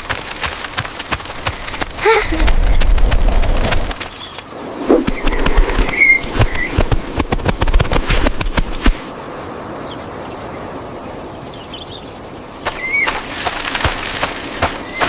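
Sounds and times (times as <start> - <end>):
rapid crackling and clicking: 0.0 - 9.1, 12.6 - 15.0.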